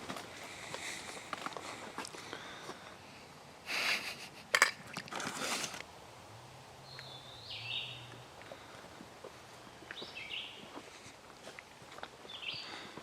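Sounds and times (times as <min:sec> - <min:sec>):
footsteps crunching on dry leaves: 0:00.0 - 0:02.8, 0:08.9 - 0:13.0
high bird chirp: 0:06.8 - 0:08.2, 0:12.3 - 0:12.8.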